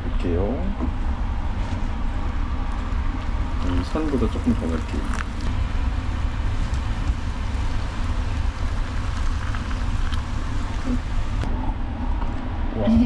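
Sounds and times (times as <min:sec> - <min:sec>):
steady low rumble: 0:00.0 - 0:13.0
rain falling: 0:01.9 - 0:11.5.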